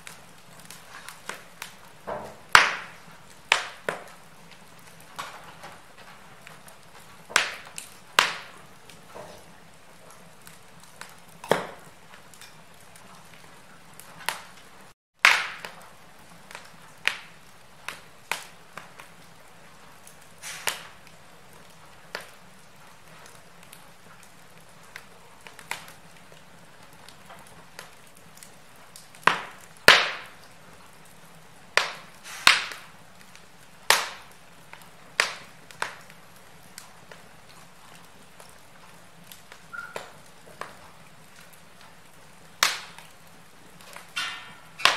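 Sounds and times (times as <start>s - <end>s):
faint steady hiss: 0.0s - 44.9s
wood fire crackling and popping: 0.0s - 44.9s.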